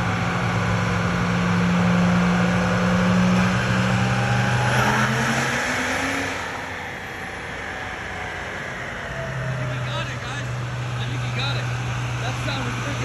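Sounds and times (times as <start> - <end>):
diesel truck engine under load: 9.4 - 13.0
high whine: 9.4 - 13.0.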